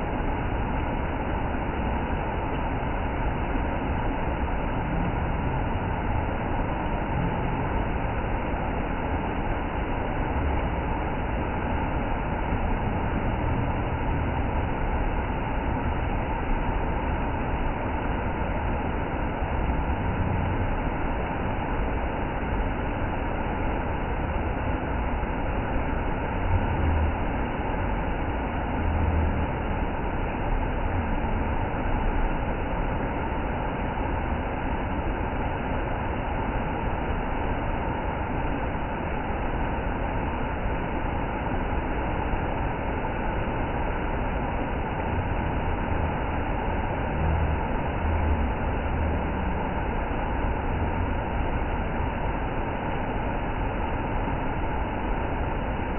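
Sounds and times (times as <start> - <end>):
waterfall roaring: 45.4 - 51.6.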